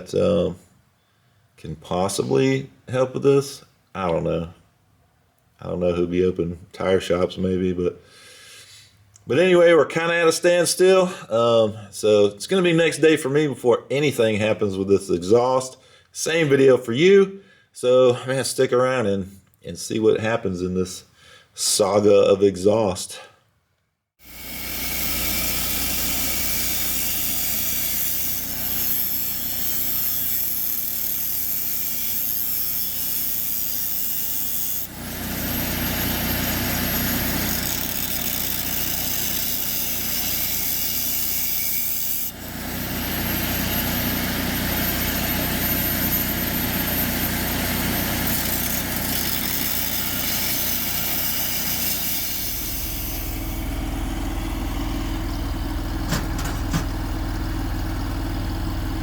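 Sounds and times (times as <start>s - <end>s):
power tool on metal: 24.2s - 56.9s
high tool whine: 24.2s - 59.0s.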